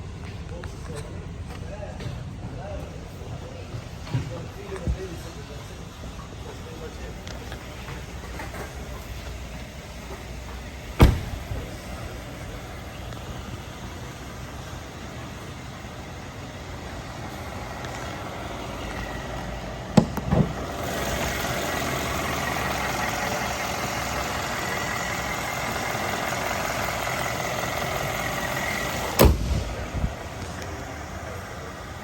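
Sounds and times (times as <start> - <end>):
car engine idling: 4.4 - 32.0
heavy car door thump: 11.0 - 11.6, 20.0 - 20.6, 29.1 - 30.2
door latch clicks: 29.2 - 29.6.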